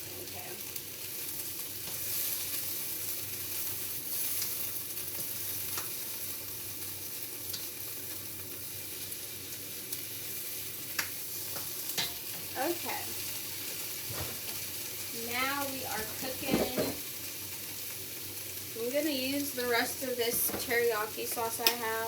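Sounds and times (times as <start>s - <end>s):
vegetables sizzling in a pan: 0.0s - 22.0s
utensil clicking against pan: 21.3s - 21.8s.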